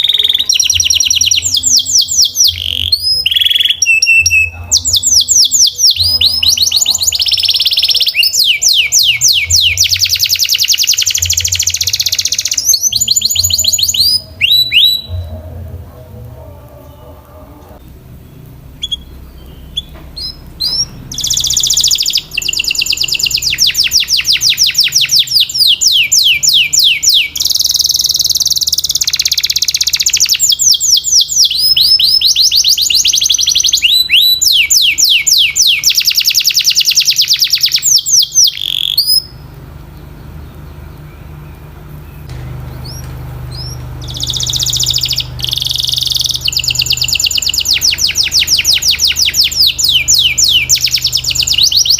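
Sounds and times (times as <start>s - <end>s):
canary singing fast trills: 0.0s - 51.9s
steady low hum: 11.0s - 25.6s, 39.0s - 51.9s.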